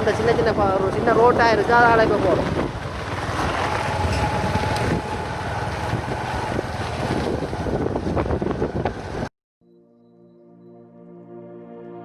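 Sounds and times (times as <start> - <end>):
wind buffeting microphone: 0.0 - 9.3
soft ambient music: 9.7 - 12.0.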